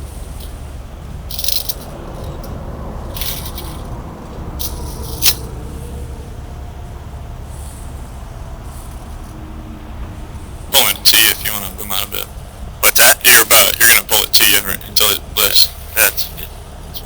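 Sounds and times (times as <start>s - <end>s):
idling heavy trucks rumble: 0.0s - 17.0s
metallic rattles and scrapes: 1.3s - 6.4s, 7.4s - 9.4s.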